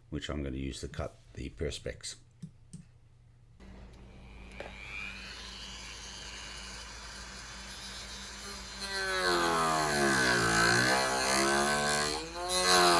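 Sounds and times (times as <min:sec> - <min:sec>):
rotary tool whining: 0:03.6 - 0:12.9.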